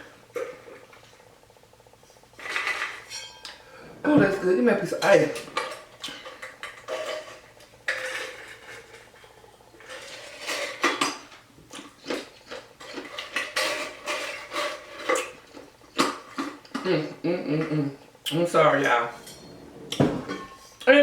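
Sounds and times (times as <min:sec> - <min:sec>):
dishes and cutlery clinking: 0:19.2 - 0:20.7.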